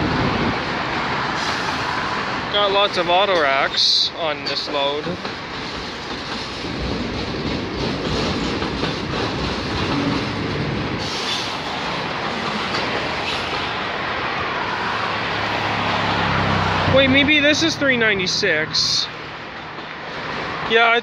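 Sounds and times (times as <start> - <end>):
freight train rumbling past: 0.0 - 21.0
faint clickety-clack: 4.4 - 10.3.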